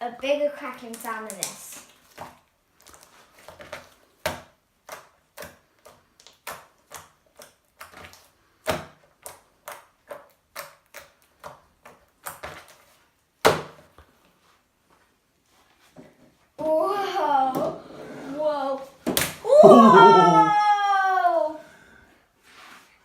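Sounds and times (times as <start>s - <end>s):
slime crackling and popping: 0.8s - 3.1s.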